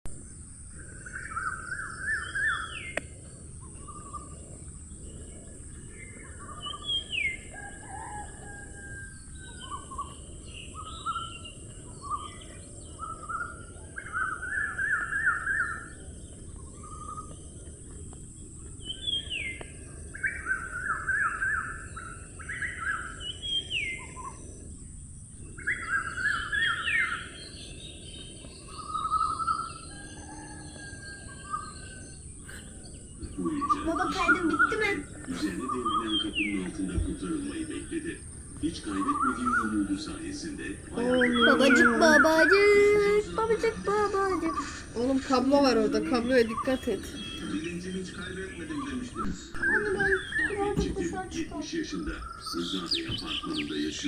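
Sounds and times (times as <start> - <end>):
birds trilling: 0.1 - 54.0
steady high hiss: 31.9 - 54.0.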